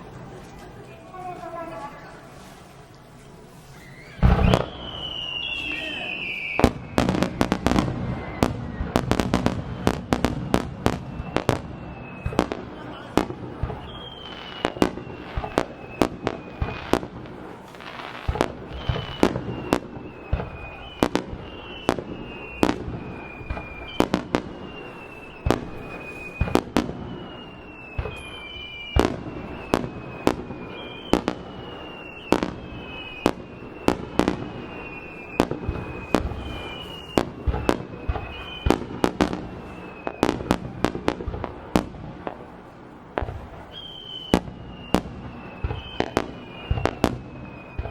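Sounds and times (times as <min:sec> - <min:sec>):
descending firework whistles: 0:00.0 - 0:47.9
firework shells bursting: 0:03.7 - 0:12.7.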